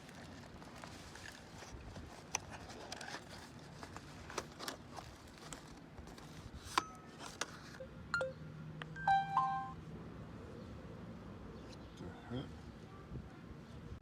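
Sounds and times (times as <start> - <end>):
brief ringing tone: 9.0 - 9.8.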